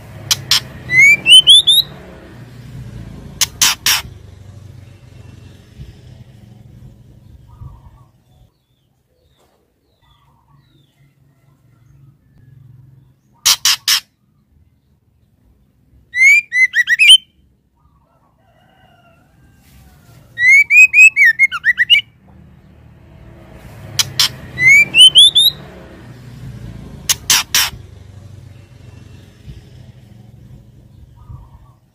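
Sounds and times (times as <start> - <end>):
bird whistling rising notes: 0.4 - 2.0, 16.1 - 17.4, 20.4 - 22.1, 24.1 - 25.7.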